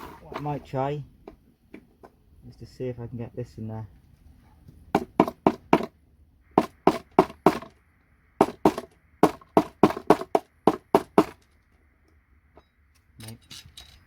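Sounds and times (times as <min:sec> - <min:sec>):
tool knocking on metal: 0:04.9 - 0:05.9, 0:06.6 - 0:07.7, 0:08.4 - 0:11.4.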